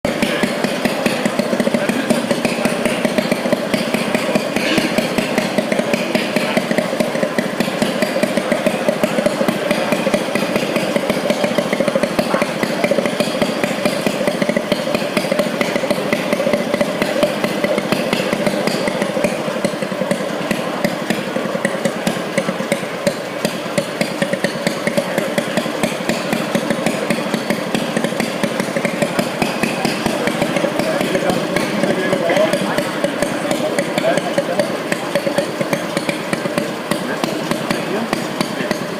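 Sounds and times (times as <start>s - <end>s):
small diesel engine knocking: 0.0s - 38.9s.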